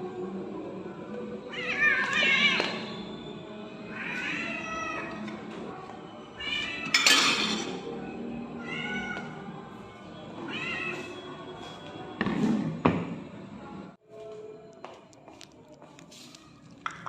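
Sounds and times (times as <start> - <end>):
cat meowing: 1.5 - 2.9, 3.9 - 5.2, 6.4 - 7.2, 8.6 - 9.4, 10.5 - 11.1.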